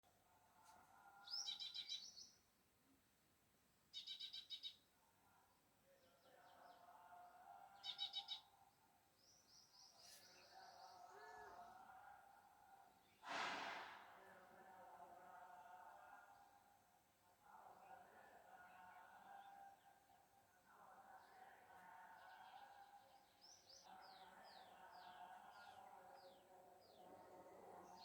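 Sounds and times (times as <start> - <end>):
faint bird chirping: 1.2 - 2.5, 3.9 - 4.9, 7.7 - 12.0.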